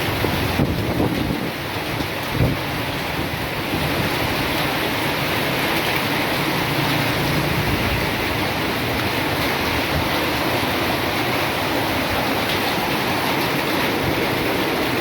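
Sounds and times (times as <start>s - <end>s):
rain falling: 0.0s - 15.0s
wind rumbling on microphone: 0.0s - 15.0s.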